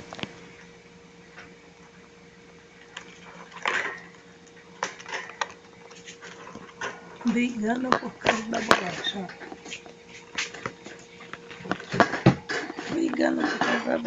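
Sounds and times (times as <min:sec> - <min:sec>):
faint steady hum: 0:00.0 - 0:14.0
hamsters scuffling: 0:04.8 - 0:14.0.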